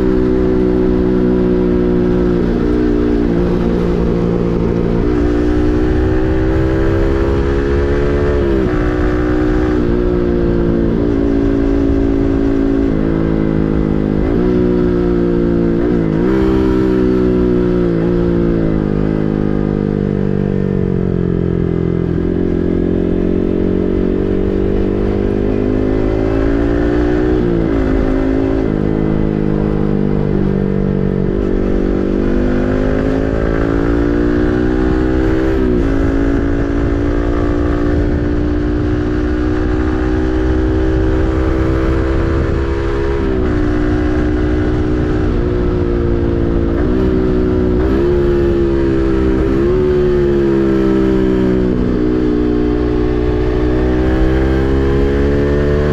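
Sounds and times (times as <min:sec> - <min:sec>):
motorcycle engine shifting gears: 0:00.0 - 0:55.9.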